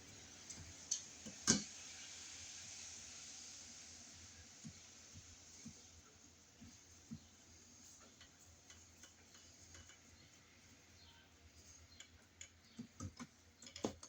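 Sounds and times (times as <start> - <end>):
faint clicks and taps: 4.6 - 14.0.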